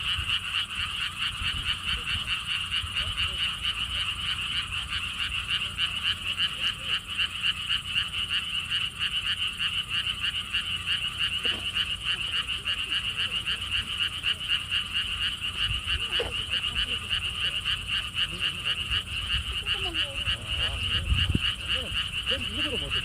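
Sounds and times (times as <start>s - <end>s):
low rumble of wind: 0.0s - 5.5s, 14.8s - 23.0s
chorus of frogs calling: 0.0s - 23.0s.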